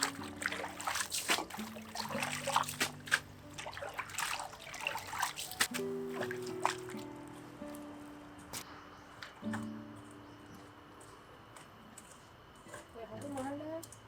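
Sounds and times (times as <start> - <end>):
wet spattering and crackling: 0.0 - 7.1
soft background music: 0.0 - 14.0.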